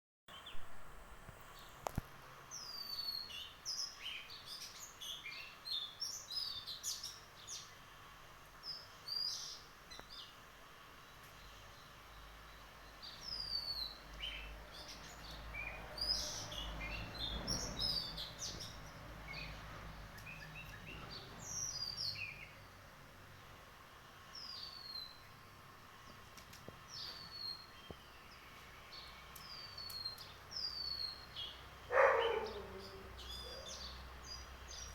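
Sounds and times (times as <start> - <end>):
birds chirping: 11.0 - 23.5, 24.2 - 34.9.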